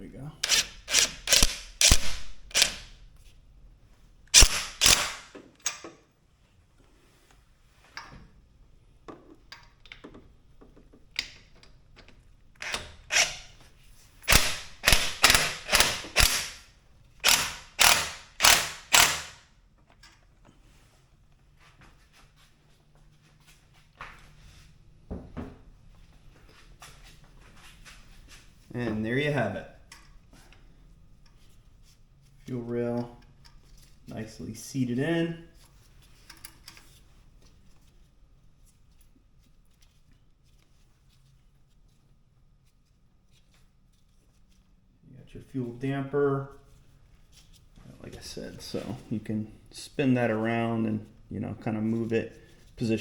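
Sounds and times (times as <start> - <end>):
ratchet wrench clicking: 0.4 - 2.9, 4.4 - 5.3, 12.6 - 13.5, 14.3 - 16.6, 17.2 - 19.4.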